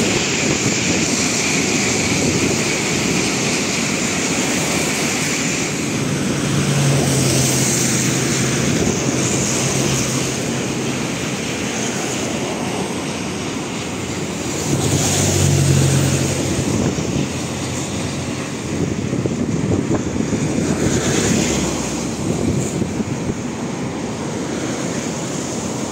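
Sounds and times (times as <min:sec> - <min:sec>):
train wheels rumbling on track: 0:00.0 - 0:25.9.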